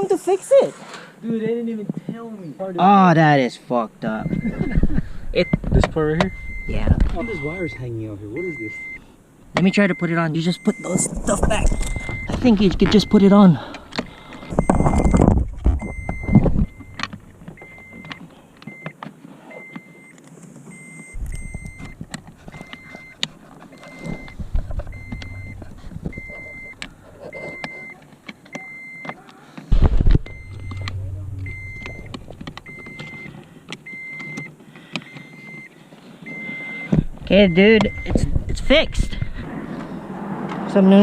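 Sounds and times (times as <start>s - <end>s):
vehicle warning chime beeping: 4.0s - 28.0s, 28.6s - 29.2s, 29.8s - 39.3s
loud thump: 5.4s - 8.1s, 11.3s - 13.0s, 14.5s - 17.7s, 24.2s - 27.0s, 29.7s - 33.3s
parts being handled: 10.7s - 18.9s, 20.6s - 28.5s.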